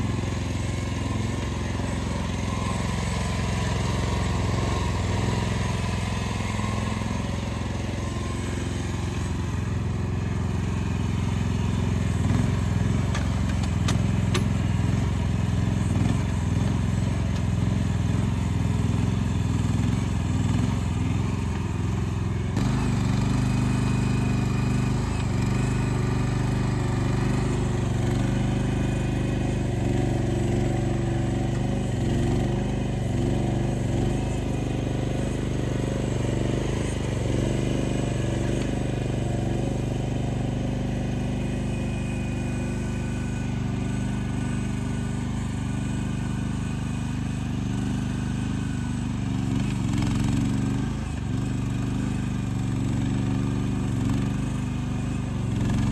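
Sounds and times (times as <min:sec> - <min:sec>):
excavator engine running: 0:00.0 - 0:41.6.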